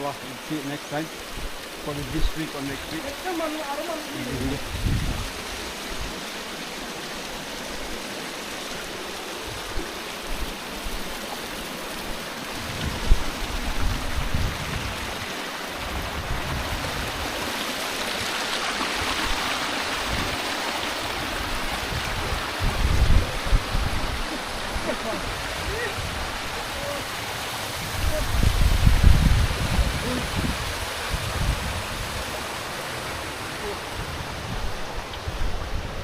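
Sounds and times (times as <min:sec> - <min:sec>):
stream water running over rocks: 0:00.0 - 0:36.0
low rumbling microphone bumps: 0:04.4 - 0:05.4.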